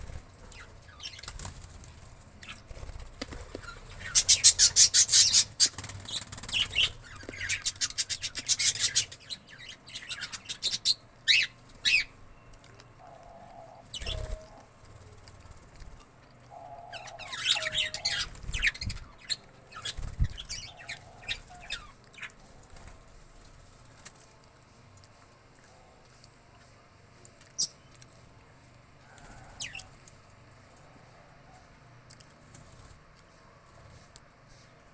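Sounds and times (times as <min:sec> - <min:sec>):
parakeet chattering and screeching: 0:03.6 - 0:12.1, 0:16.6 - 0:22.3.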